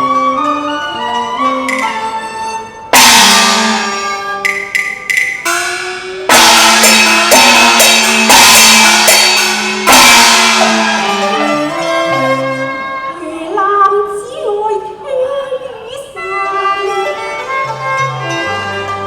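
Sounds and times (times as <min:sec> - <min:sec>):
sustained melodic instruments: 0:00.0 - 0:15.3, 0:16.1 - 0:19.0
loud percussion crashes: 0:02.9 - 0:13.2.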